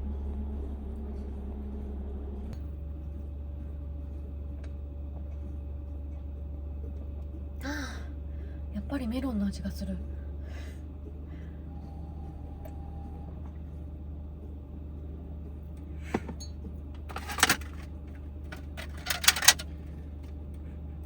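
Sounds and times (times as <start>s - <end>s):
van cabin hum: 16.0s - 20.7s
knocks and clatters of handling: 16.1s - 20.4s.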